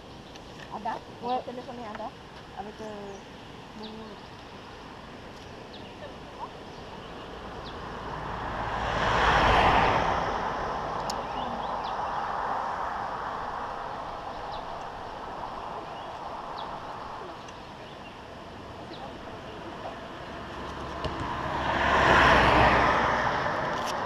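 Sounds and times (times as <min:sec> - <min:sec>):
vehicle passing: 0:06.4 - 0:24.0.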